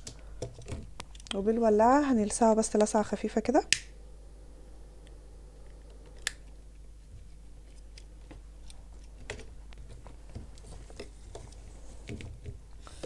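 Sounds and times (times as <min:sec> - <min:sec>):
lighter click: 0:03.7 - 0:03.9.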